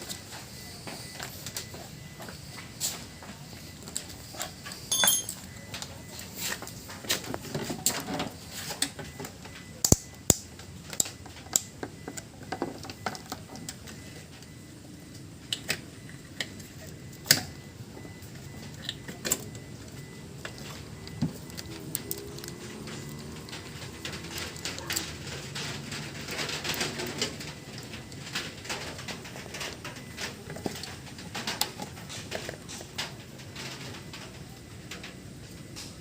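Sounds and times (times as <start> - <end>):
metal tools clinking: 4.9 - 5.5.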